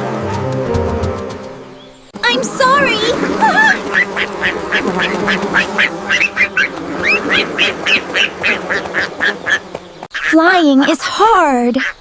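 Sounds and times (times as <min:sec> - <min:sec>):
duck calling: 0:03.0 - 0:09.6.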